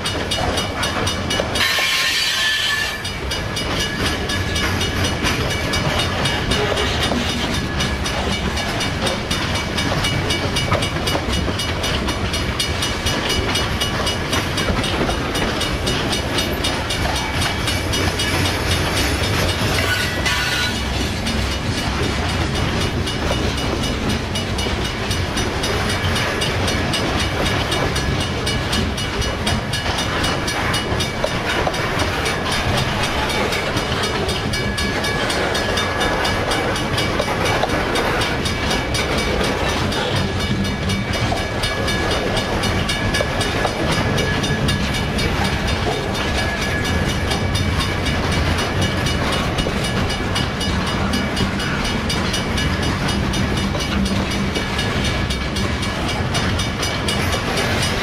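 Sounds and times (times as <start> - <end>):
train wheels clattering on rails: 0.0 - 58.0.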